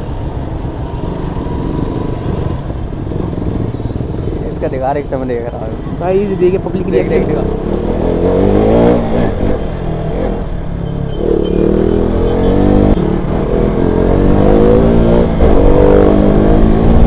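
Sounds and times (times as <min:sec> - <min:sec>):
motorcycle engine revving: 0:07.0 - 0:17.0.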